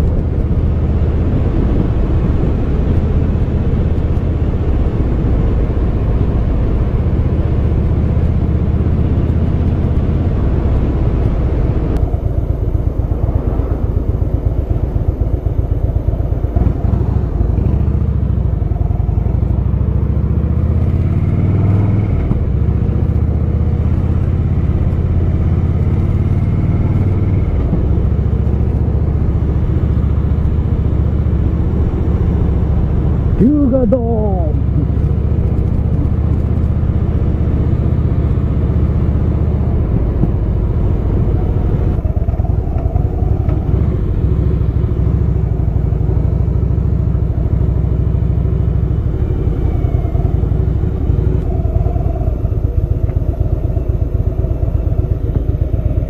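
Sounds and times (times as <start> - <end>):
motorcycle engine drone: 0.0 - 56.0.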